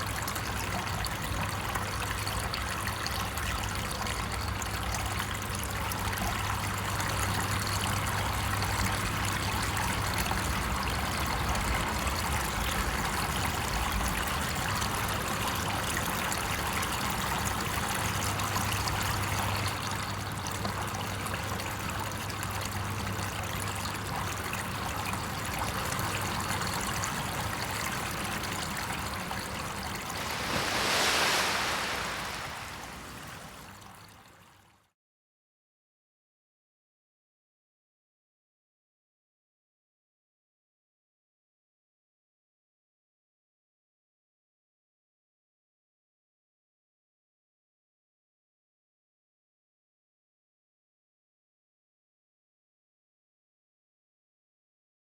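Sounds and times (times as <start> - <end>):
trickling water: 29.7 - 34.1.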